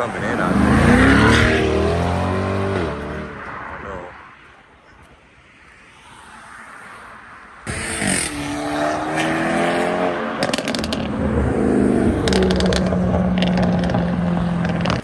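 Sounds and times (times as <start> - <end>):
car engine revving hard: 0.1 - 3.4, 7.7 - 15.0
sharp exhaust crackles: 7.7 - 9.5.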